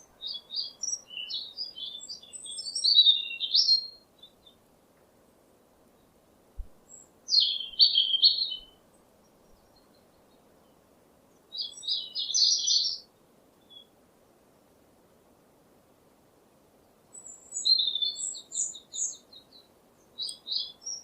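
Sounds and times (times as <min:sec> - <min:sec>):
songbird singing: 0:00.0 - 0:14.0, 0:16.8 - 0:21.0.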